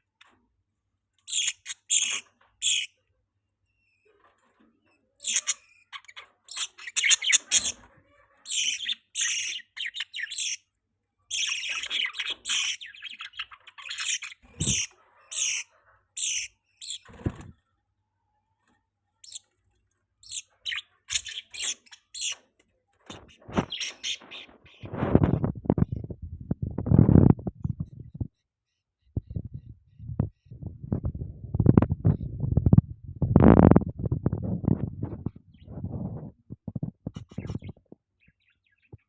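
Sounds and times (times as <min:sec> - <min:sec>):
budgerigars chirping: 0:01.2 - 0:03.0, 0:04.8 - 0:10.7, 0:11.3 - 0:17.4, 0:19.2 - 0:19.5, 0:20.2 - 0:24.9, 0:37.2 - 0:39.0.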